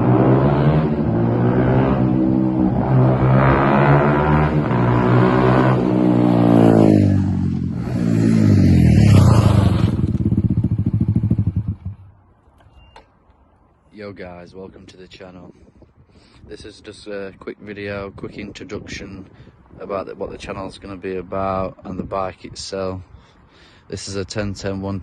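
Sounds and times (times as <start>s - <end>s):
pit bike engine revving: 0.0s - 12.1s.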